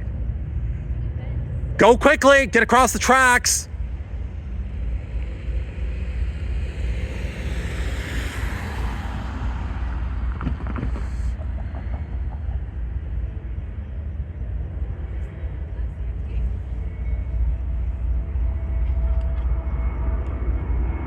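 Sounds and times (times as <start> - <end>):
road vehicle hiss: 4.1 - 11.7
wind buffeting microphone: 4.4 - 13.8.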